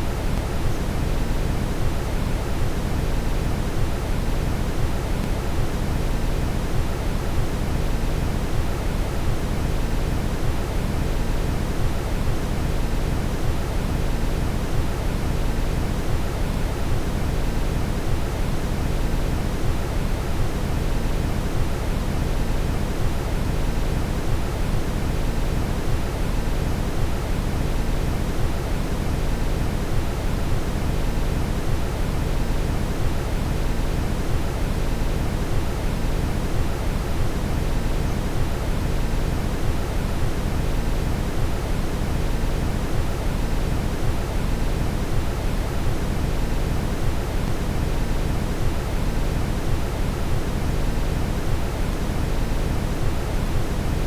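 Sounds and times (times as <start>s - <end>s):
brown noise hiss: 0.0s - 54.0s.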